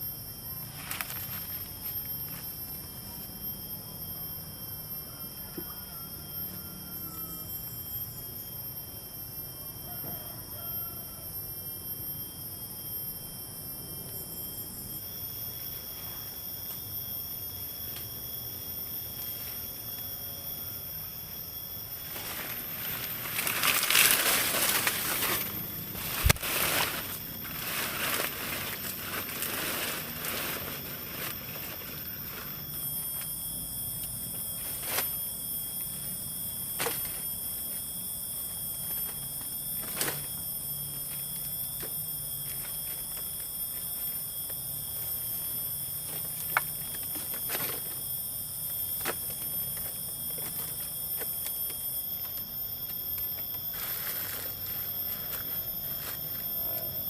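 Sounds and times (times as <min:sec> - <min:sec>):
high-pitched insect drone: 0:00.0 - 0:57.0
rustling and handling noise: 0:00.7 - 0:02.6, 0:22.0 - 0:33.3.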